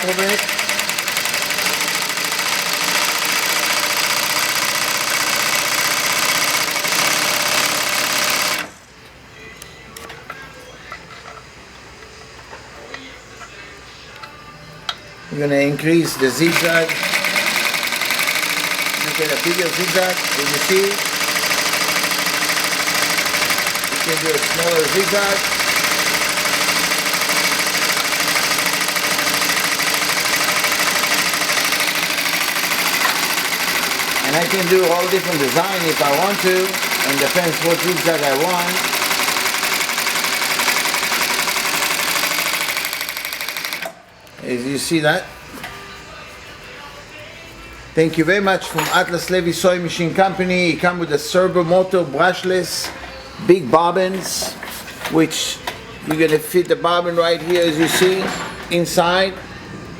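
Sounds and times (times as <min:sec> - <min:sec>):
sewing machine stitching leather: 0:00.0 - 0:08.8, 0:16.1 - 0:44.0.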